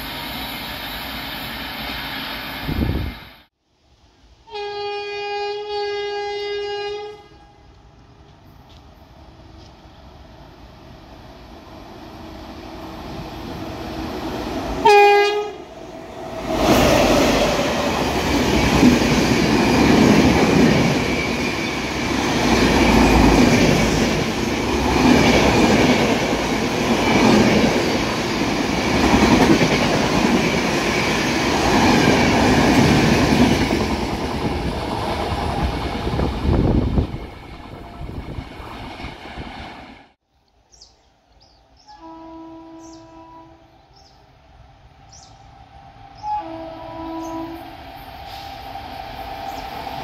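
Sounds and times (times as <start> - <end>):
train coaches rushing past: 0.0 - 3.5, 8.2 - 40.2, 44.0 - 50.0
train horn blast: 4.4 - 7.7, 14.8 - 15.7, 41.8 - 43.8, 46.2 - 47.7.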